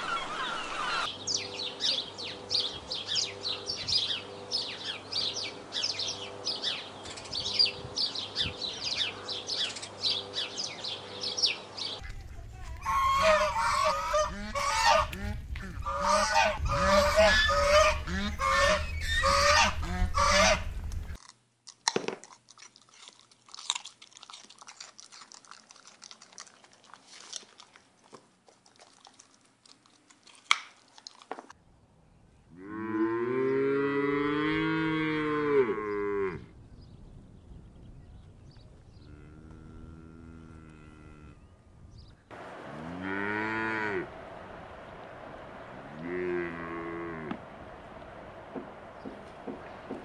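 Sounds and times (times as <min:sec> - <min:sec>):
goose honking: 0:12.0 - 0:21.2
animal licking and clicks: 0:20.9 - 0:31.6
cow mooing: 0:32.6 - 0:36.5, 0:39.0 - 0:41.4, 0:42.7 - 0:44.1, 0:45.8 - 0:47.4.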